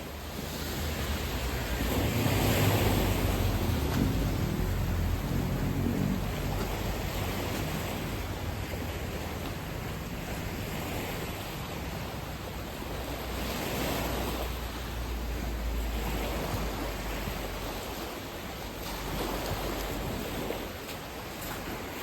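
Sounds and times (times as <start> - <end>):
steady rushing outdoor noise: 0.0 - 22.0
low rumble: 2.0 - 8.5.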